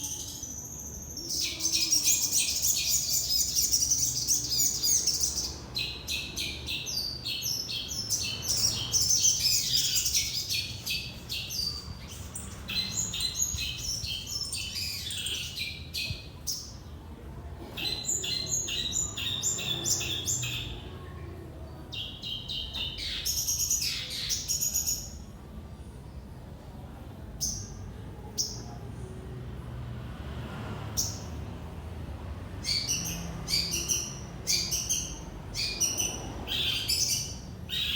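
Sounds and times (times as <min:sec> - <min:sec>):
songbird chirping rapidly: 0:32.6 - 0:37.9.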